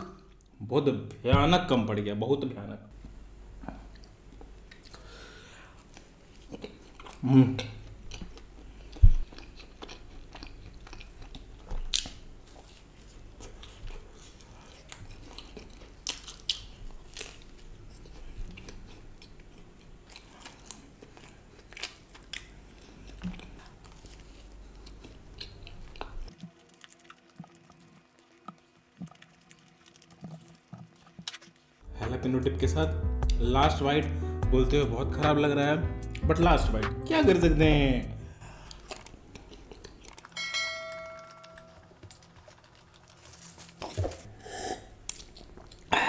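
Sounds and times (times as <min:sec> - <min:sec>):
low background hum: 0:00.0 - 0:46.0
mouth chewing bread: 0:05.8 - 0:31.8, 0:38.4 - 0:40.4, 0:41.5 - 0:46.0.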